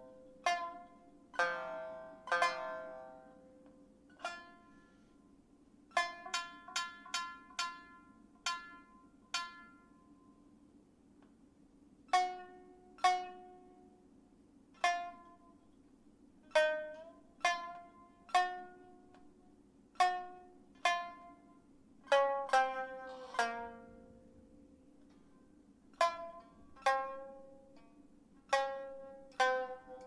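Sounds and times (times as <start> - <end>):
plucked string instrument notes: 0.0 - 3.5, 4.2 - 4.9, 20.0 - 30.0.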